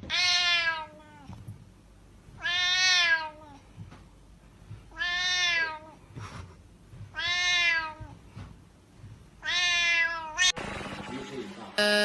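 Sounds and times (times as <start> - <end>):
cat meowing: 0.0 - 1.3, 2.4 - 3.6, 4.9 - 6.0, 7.2 - 8.2, 9.4 - 10.6.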